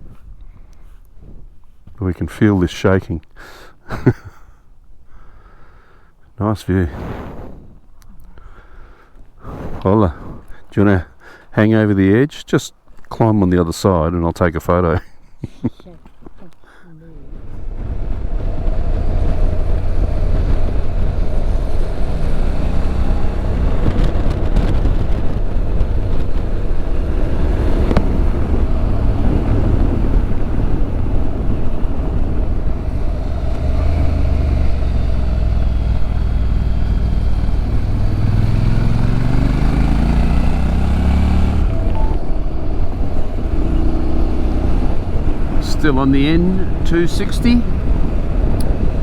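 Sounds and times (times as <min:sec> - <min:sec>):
wind and road rush: 0:00.0 - 0:49.0
motorcycle engine running: 0:18.4 - 0:45.7.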